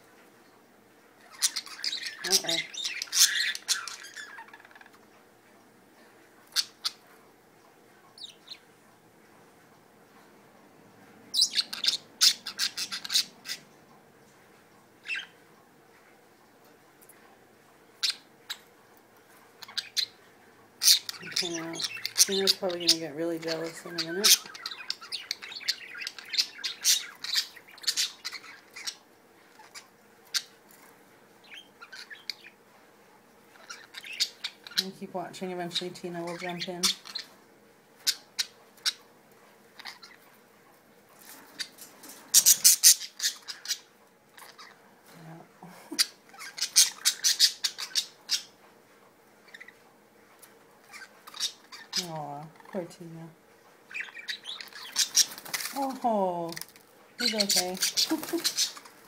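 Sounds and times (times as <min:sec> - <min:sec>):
budgies squawking: 0:01.2 - 0:05.0, 0:06.5 - 0:07.0, 0:11.4 - 0:13.7, 0:15.0 - 0:15.4, 0:20.8 - 0:30.6, 0:31.4 - 0:32.6, 0:33.5 - 0:34.9, 0:35.6 - 0:37.4, 0:39.7 - 0:40.2, 0:41.5 - 0:44.8, 0:45.9 - 0:48.6, 0:49.4 - 0:49.8, 0:50.8 - 0:52.9, 0:53.9 - 0:56.3, 0:57.2 - 0:59.0.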